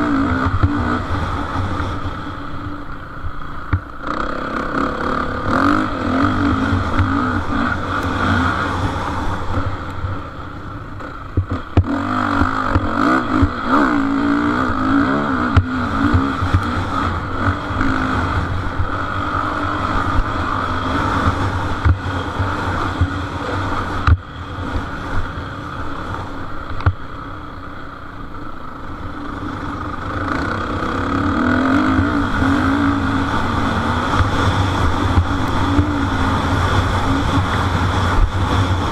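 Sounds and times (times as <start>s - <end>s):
motocross engines revving: 0.0s - 26.6s, 27.9s - 38.9s
drone of distant engines: 0.0s - 38.9s.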